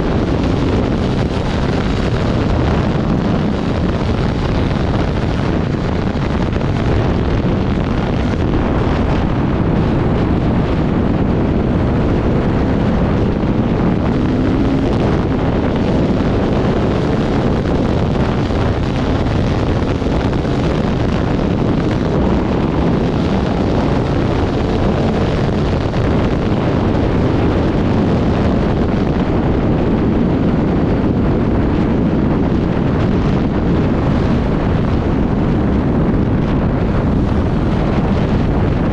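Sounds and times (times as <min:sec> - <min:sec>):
wind buffeting microphone: 0:00.0 - 0:38.9
motorcycle engine: 0:06.6 - 0:19.2.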